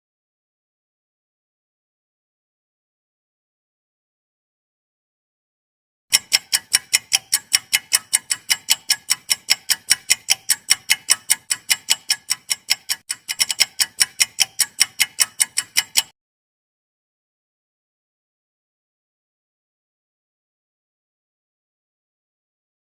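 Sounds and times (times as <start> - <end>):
fast clock ticking: 6.1 - 16.2.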